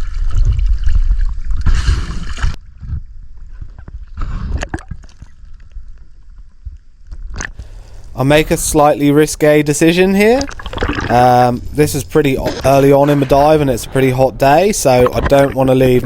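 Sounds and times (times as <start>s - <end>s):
water sloshing and gurgling: 0.0s - 8.1s, 10.0s - 16.0s
short water splashes: 10.2s - 11.3s.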